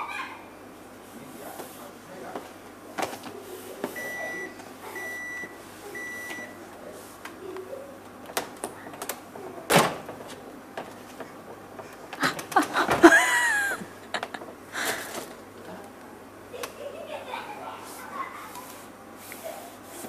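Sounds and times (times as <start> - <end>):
refrigerator alarm beeping: 4.0 - 6.6.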